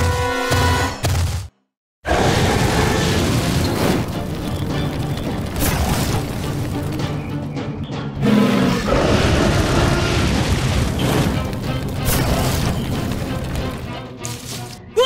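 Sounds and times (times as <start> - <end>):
background music: 2.4 - 15.0.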